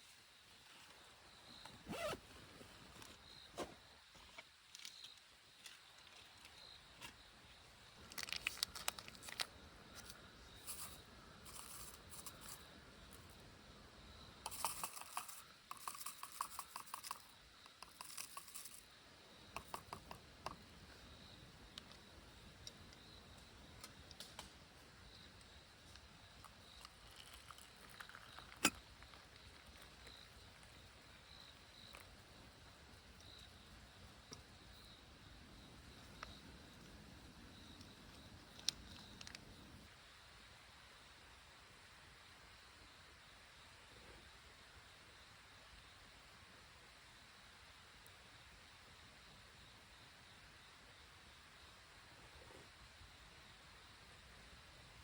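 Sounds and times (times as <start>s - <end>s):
rustling and crinkling: 8.0s - 12.6s.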